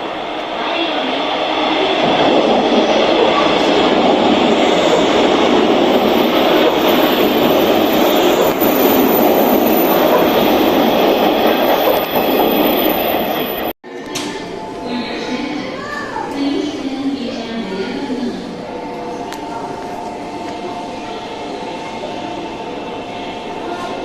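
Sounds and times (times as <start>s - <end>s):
electric train rumbling past: 0.0s - 13.8s.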